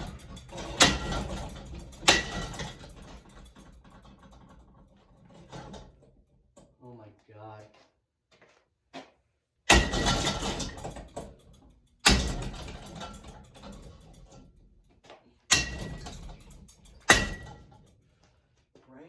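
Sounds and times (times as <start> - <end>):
ceiling fan being smashed: 0.0 - 4.4, 9.7 - 14.4, 15.5 - 17.9
metallic ring: 0.0 - 4.6, 15.5 - 18.0
clattering rattle: 0.0 - 6.2, 9.7 - 14.9, 15.5 - 18.0.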